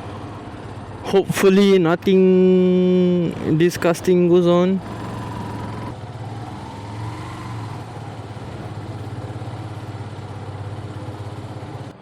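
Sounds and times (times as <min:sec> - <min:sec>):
motorcycle engine idling: 0:04.8 - 0:12.0.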